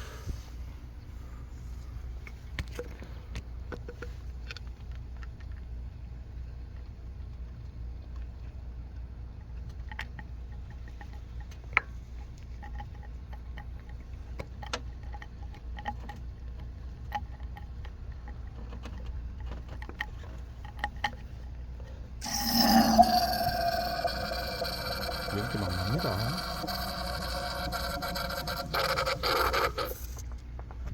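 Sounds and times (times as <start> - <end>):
low steady hum: 0.0 - 30.9
foam cleaner crackling and fizzing: 22.2 - 30.3.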